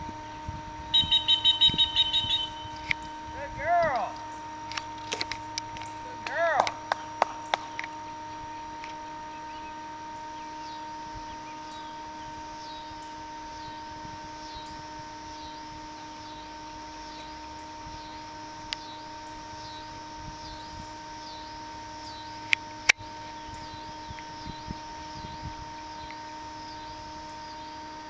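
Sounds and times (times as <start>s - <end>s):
faint steady hum: 0.0s - 28.0s
bird calling high swooping note: 0.9s - 5.0s.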